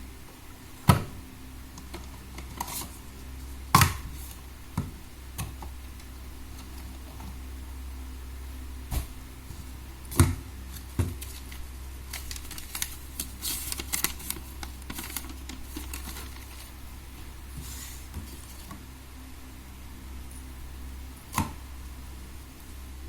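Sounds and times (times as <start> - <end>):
light clicks and rustles of packaging: 10.7 - 16.8.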